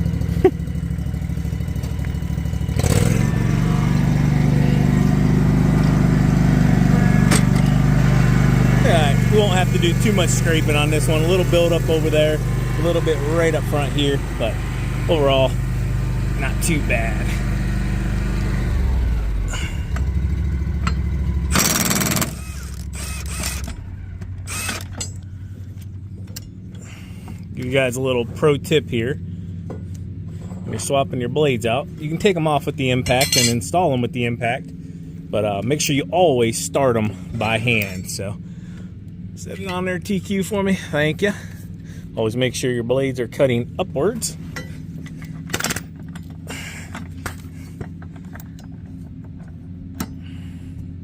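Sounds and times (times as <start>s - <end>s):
mower engine running: 0.0s - 42.2s, 42.9s - 51.0s
impact wrench hammering: 20.8s - 23.8s.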